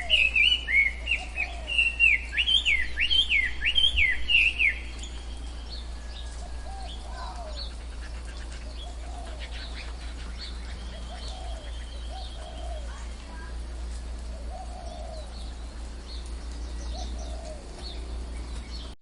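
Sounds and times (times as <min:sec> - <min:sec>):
bird chirps: 0:00.0 - 0:13.6.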